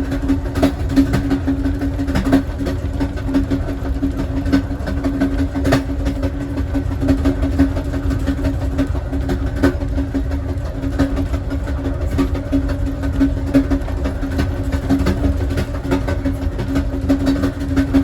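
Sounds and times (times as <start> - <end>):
steady hum: 0.0 - 18.0
train wheels rumbling on rail: 0.0 - 18.0.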